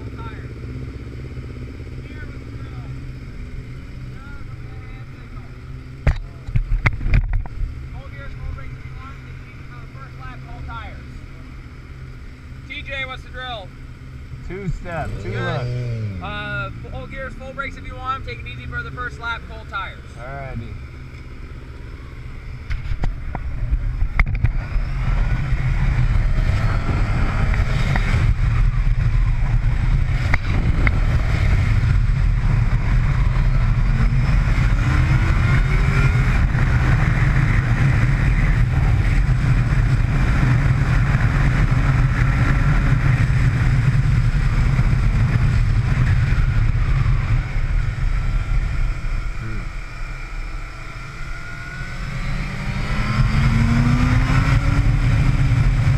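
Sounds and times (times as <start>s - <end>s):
motorcycle engine rumbling: 0.0s - 55.9s.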